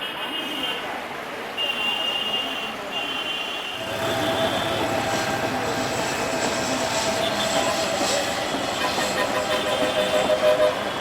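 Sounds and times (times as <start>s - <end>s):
train running gear rumbling: 3.8s - 11.0s.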